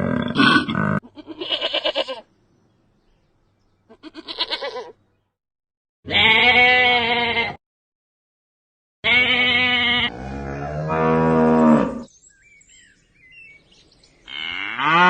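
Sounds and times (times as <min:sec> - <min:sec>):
livestock bleating: 0:01.0 - 0:02.3, 0:03.9 - 0:05.0, 0:06.1 - 0:07.6, 0:09.0 - 0:12.0.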